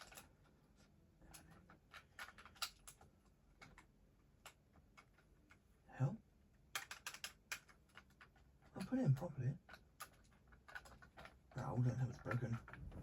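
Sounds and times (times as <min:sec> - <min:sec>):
plastic toy clicks and taps: 0:06.7 - 0:08.4.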